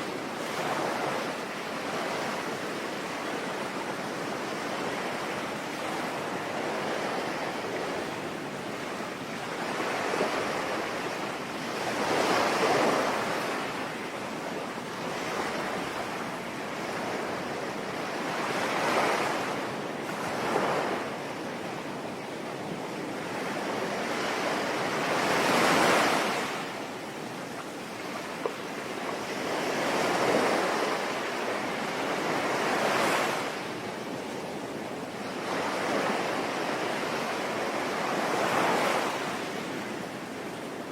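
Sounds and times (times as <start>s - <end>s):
sea waves breaking: 23.1s - 40.9s.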